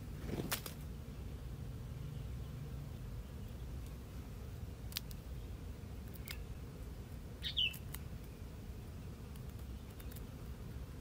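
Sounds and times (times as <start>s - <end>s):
small bird chirp: 5.3s - 6.6s, 7.4s - 8.5s, 9.4s - 10.3s.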